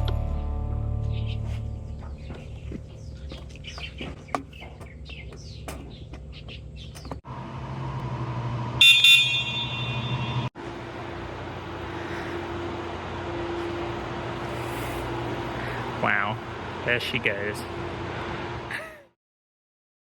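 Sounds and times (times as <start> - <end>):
low hum: 0.0 - 19.0
vehicle hum: 0.0 - 19.1
birds chirping: 0.2 - 7.2
short horn toot: 8.8 - 10.5.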